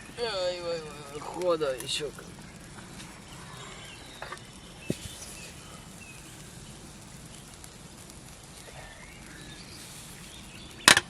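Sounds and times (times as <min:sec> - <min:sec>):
outdoor background noise: 0:00.0 - 0:11.0
faint bird chirps: 0:01.9 - 0:11.0.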